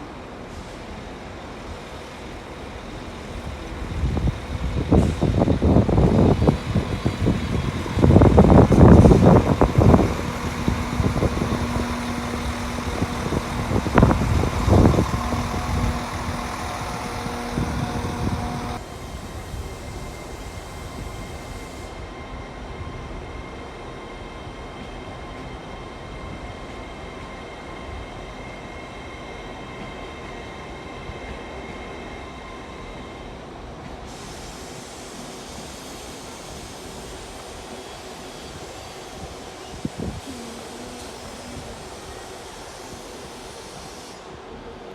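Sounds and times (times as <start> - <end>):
train rumbling: 0.0 - 44.9
train clanks: 0.3 - 21.6
faint high whine: 6.4 - 18.8.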